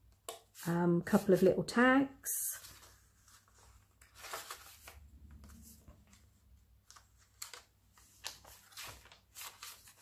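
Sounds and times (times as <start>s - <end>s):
paper pages rustling: 2.5s - 10.0s.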